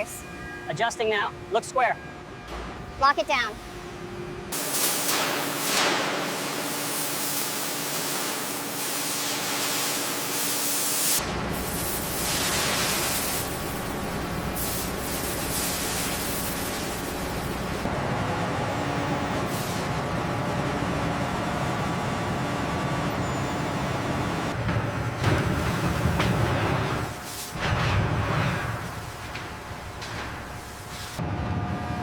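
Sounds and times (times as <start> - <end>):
steady hissing spray: 4.6 - 17.9.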